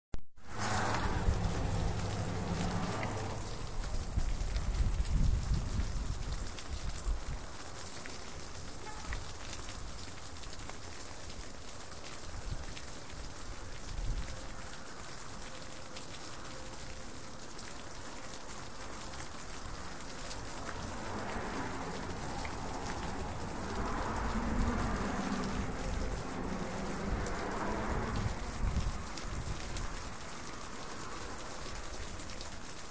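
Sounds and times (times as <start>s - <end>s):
water drops pattering: 0.6s - 5.2s, 17.6s - 32.9s.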